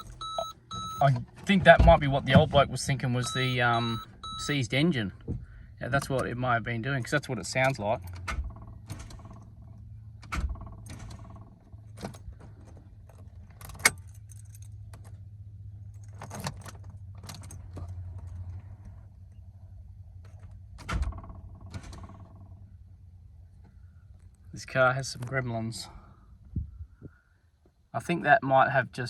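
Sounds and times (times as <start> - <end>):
car keys jangling: 7.0 - 19.5.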